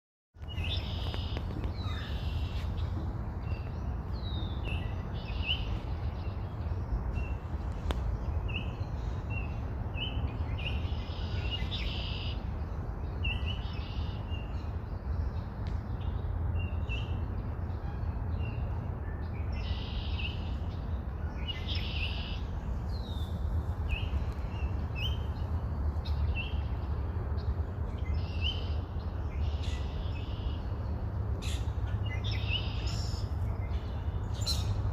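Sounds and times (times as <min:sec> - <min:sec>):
steady low rumble: 0:22.4 - 0:34.9.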